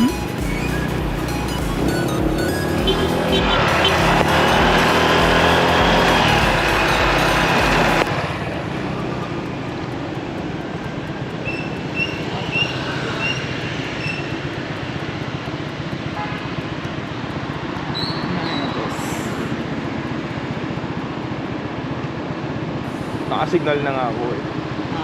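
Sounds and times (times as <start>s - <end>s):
background music: 0.0s - 8.2s
traffic noise: 0.0s - 25.0s.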